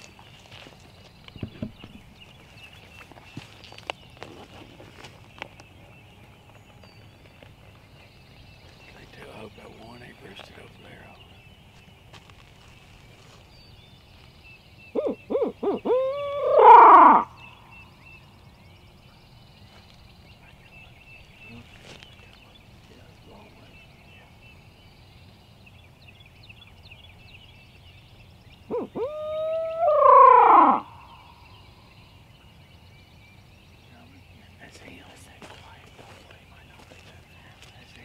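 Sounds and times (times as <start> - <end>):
owl hooting: 14.9 - 17.6, 28.7 - 31.7.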